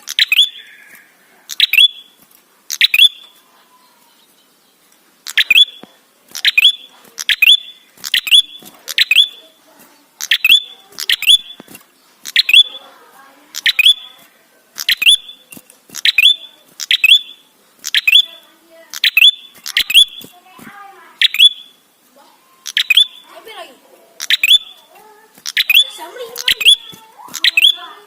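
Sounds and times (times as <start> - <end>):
bird giving sharp calls: 0.0 - 3.4, 5.3 - 9.5, 10.2 - 11.6, 12.2 - 12.8, 13.5 - 14.1, 14.8 - 15.4, 16.0 - 21.9, 22.6 - 23.4, 24.2 - 28.0.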